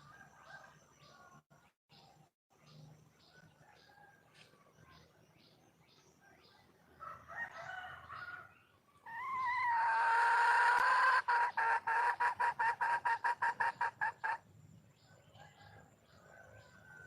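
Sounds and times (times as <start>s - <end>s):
hen calling: 9.0s - 14.4s.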